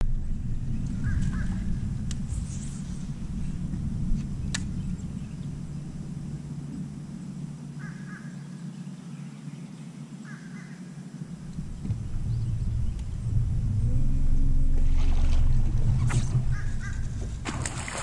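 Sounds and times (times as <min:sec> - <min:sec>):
steady low rumble: 0:00.0 - 0:18.0
short bird calls: 0:10.2 - 0:11.0.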